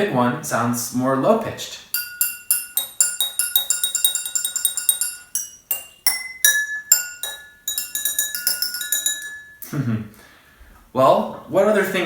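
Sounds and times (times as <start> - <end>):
glasses clinking when tapped: 2.0 - 9.7.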